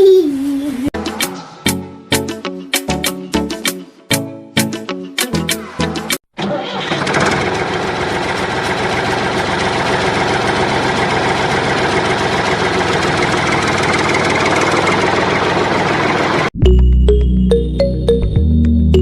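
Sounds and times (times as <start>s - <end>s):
motor running with fast chatter: 7.2s - 16.5s.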